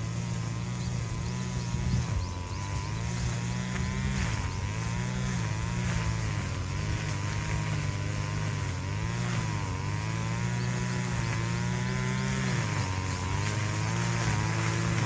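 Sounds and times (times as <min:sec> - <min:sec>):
brush cutter engine running: 0:00.0 - 0:15.0.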